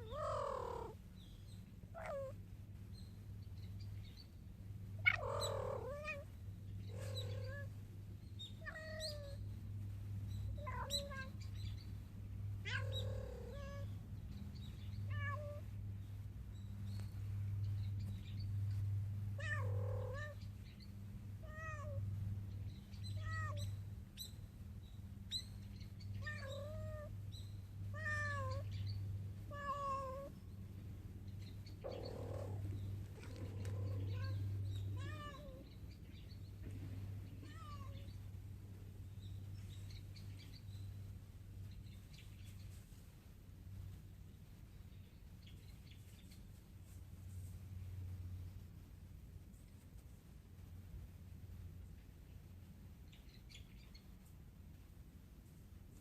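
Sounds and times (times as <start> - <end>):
steady low hum: 0.0 - 56.0
cat meowing: 1.9 - 2.4, 6.9 - 7.7, 8.6 - 9.4, 12.6 - 13.9, 15.1 - 15.7, 19.4 - 20.4, 21.4 - 22.0, 23.1 - 23.7, 26.2 - 27.1, 27.9 - 28.6, 29.5 - 30.3, 33.2 - 35.7, 37.4 - 38.1.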